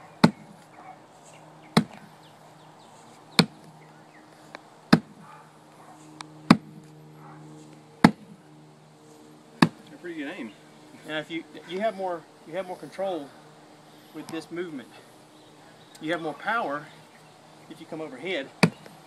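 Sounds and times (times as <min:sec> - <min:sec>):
low steady hum: 0:00.0 - 0:19.0
sledgehammer striking a stump: 0:00.2 - 0:00.6, 0:01.8 - 0:02.1, 0:03.4 - 0:03.7, 0:04.9 - 0:05.2, 0:06.5 - 0:06.8, 0:08.0 - 0:08.3, 0:09.6 - 0:09.9, 0:18.6 - 0:18.9.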